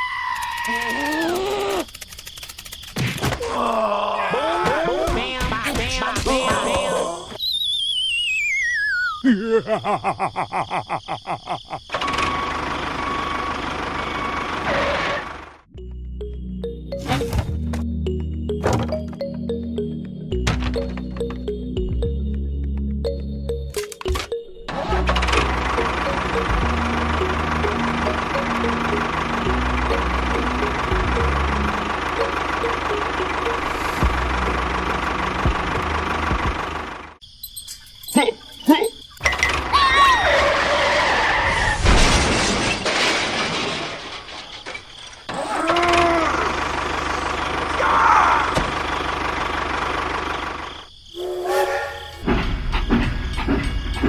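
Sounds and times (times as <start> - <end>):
cartoon sputtering: 0.0 - 2.2
wobbling whistle sliding down: 7.4 - 9.2
engine running: 24.3 - 37.2, 45.7 - 54.0
noisy rumble: 25.0 - 37.2.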